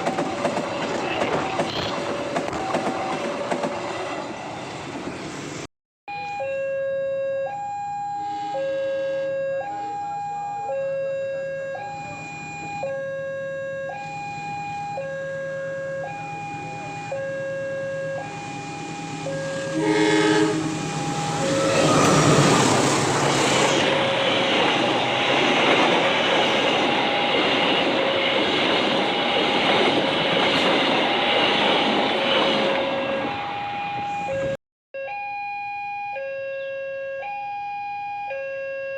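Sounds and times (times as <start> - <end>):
train passing over crossing: 0.0 - 5.7, 10.9 - 34.6
two-tone crossing alarm: 1.8 - 4.6, 6.1 - 38.9
train horn blast: 18.2 - 24.2.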